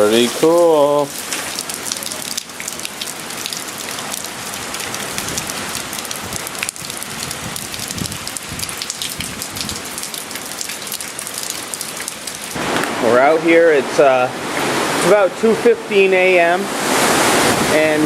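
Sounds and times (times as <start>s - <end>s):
heavy rain spattering: 0.0s - 18.0s
raindrop ticks: 1.1s - 12.9s.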